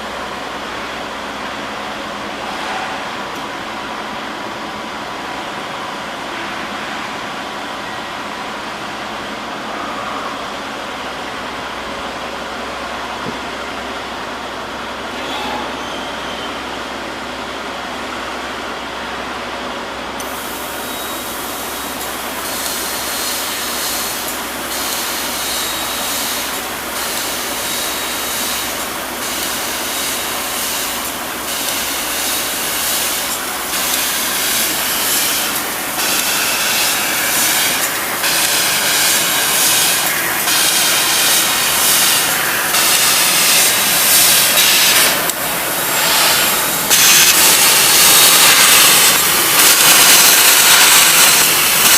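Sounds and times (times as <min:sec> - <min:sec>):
laser cutter gas jet hissing: 0:20.2 - 0:51.9.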